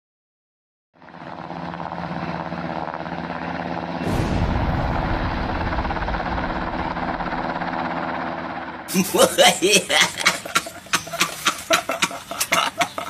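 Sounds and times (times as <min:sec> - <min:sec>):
engine-like rumble: 0:01.0 - 0:13.0
loud explosion: 0:04.0 - 0:08.9.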